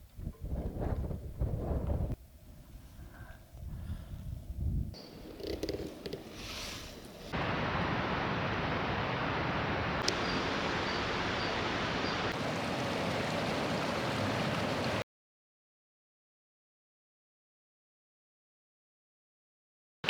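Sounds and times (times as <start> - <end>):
strong wind on microphone: 0.0 - 5.0.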